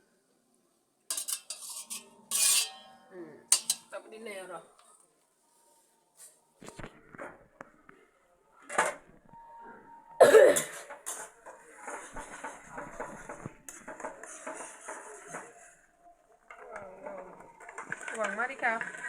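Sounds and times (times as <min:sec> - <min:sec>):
pots and pans clattering: 0:01.1 - 0:04.0
scraping clatter: 0:01.1 - 0:04.0.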